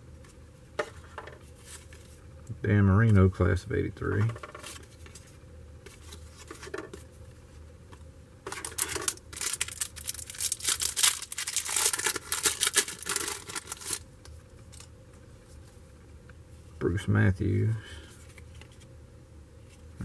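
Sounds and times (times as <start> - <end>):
paper wrapper tearing and crinkling: 8.5 - 14.0.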